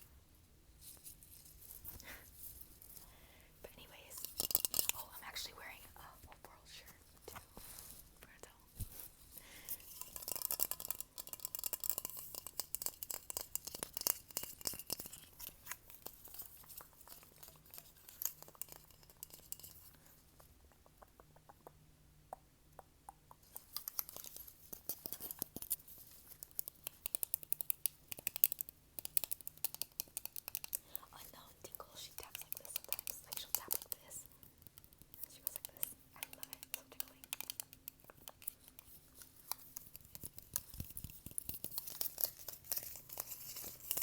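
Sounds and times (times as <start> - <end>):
crinkly scratching: 0.8 - 3.0, 3.7 - 20.2, 23.4 - 27.4, 35.1 - 44.0.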